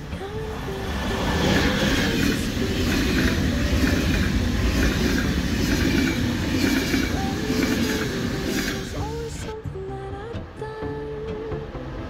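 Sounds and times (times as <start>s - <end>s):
train wheels rumbling on rails: 0.0s - 9.6s
train clattering: 0.1s - 9.6s.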